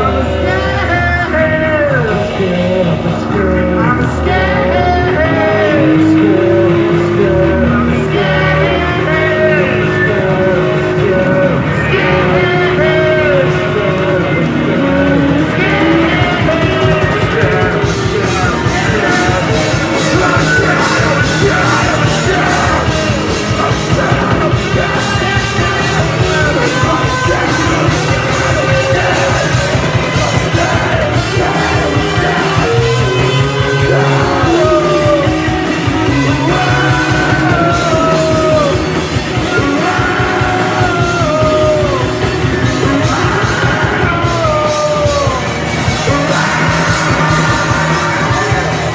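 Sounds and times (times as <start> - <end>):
live punk rock band: 0.0 - 48.9
person singing: 0.0 - 48.9.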